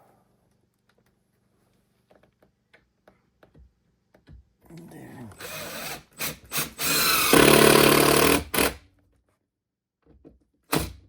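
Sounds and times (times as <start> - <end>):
power drill running: 5.4 - 8.8.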